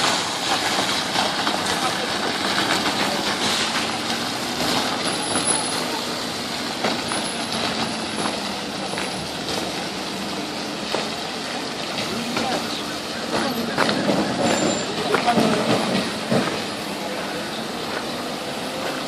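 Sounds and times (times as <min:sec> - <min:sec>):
pile driver engine running: 0:00.0 - 0:19.0
high squeals: 0:12.6 - 0:15.1.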